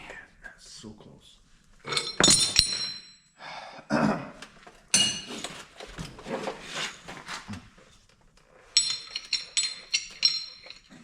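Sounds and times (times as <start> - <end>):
metal tools clinking: 1.9 - 3.2, 4.9 - 6.0, 8.5 - 11.0.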